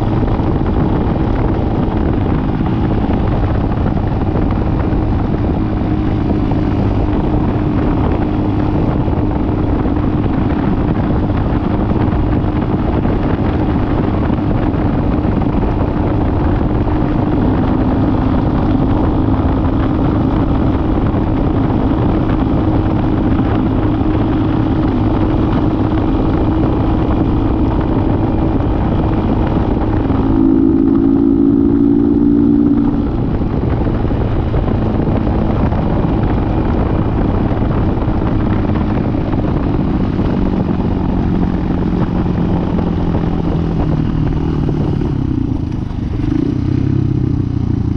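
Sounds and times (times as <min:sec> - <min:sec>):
dirt bike engine running: 0:00.0 - 0:47.9.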